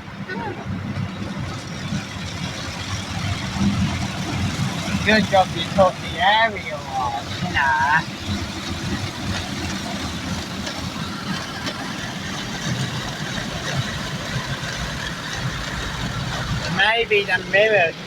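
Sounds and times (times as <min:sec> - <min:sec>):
car wash brushes churning: 0:00.0 - 0:18.0.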